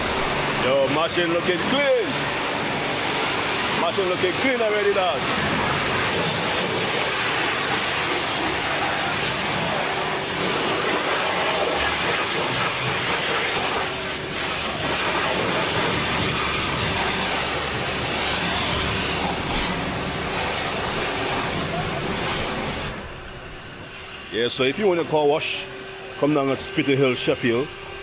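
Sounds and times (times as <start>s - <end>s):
pressure washer spraying water: 0.0s - 23.2s.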